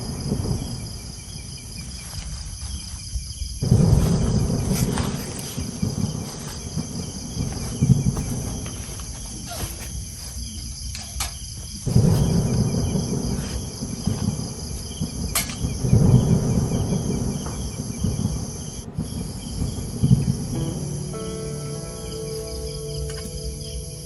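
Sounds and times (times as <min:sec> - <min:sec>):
crickets and insects droning: 0:00.0 - 0:24.0
low rumbling noise: 0:13.9 - 0:24.0.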